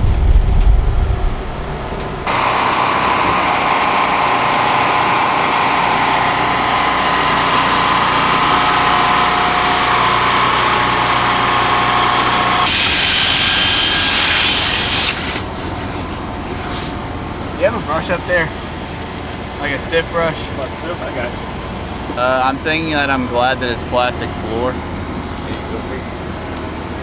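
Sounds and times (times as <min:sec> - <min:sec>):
power tool motor whining: 0:01.9 - 0:16.2.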